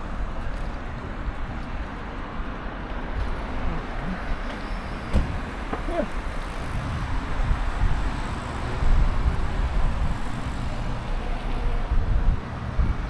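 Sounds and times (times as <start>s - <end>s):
city traffic: 0.0s - 13.0s
wind rumbling on microphone: 5.0s - 13.0s.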